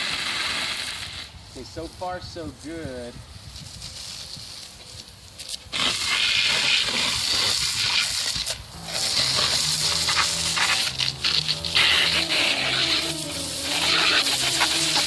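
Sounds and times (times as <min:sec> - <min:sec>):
hose nozzle spraying water: 0:05.7 - 0:15.0
background music: 0:08.8 - 0:15.0.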